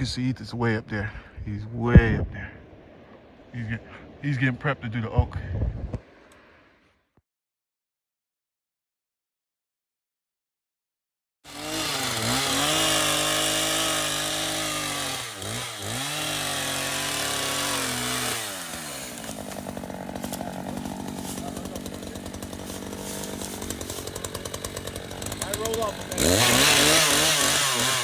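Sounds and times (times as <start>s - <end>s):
chainsaw revving and idling: 11.4s - 28.0s.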